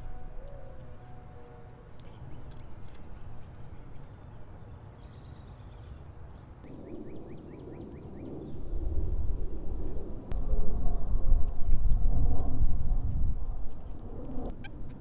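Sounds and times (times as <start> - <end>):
strong low rumble: 6.9 - 14.6.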